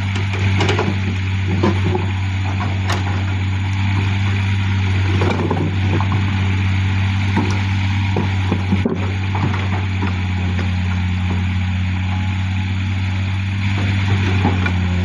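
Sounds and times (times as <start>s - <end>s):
diesel machinery humming: 0.0s - 15.0s
short clanks and knocks: 0.1s - 3.4s, 5.1s - 6.3s, 7.3s - 11.4s, 13.7s - 14.9s.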